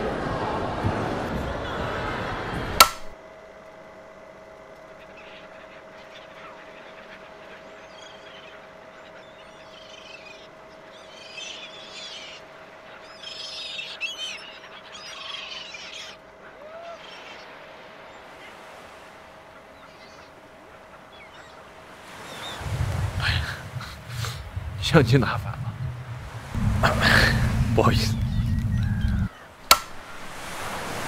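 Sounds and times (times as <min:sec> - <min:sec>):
sharp click: 0:02.8 - 0:03.1, 0:29.7 - 0:30.0
faint steady tone: 0:02.8 - 0:31.0
faint birds chirping: 0:04.2 - 0:31.0
loud noisy sound: 0:22.6 - 0:30.1.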